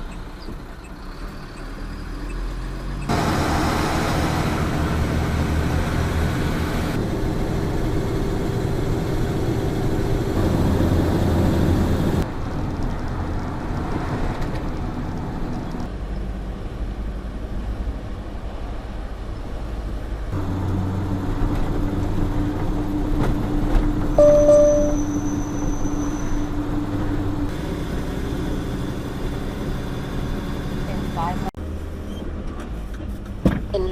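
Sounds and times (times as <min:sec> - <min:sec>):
truck engine running: 0:00.0 - 0:12.2, 0:20.4 - 0:31.8
road noise: 0:00.0 - 0:33.9.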